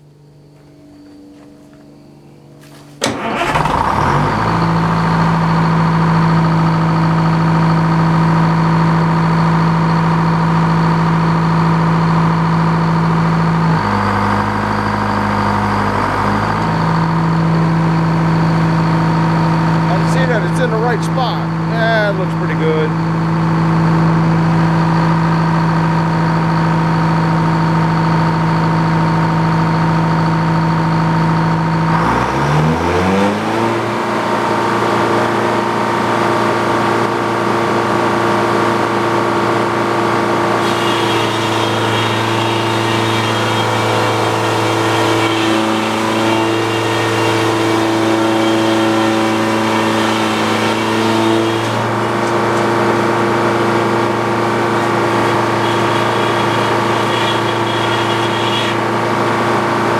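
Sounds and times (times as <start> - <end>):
sawmill engine running: 3.0 - 59.9
circular saw cutting log: 38.8 - 59.9.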